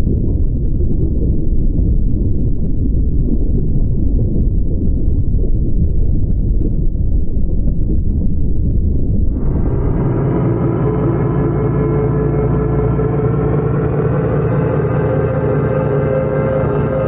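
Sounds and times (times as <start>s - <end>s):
loud low rumble: 7.9s - 17.0s.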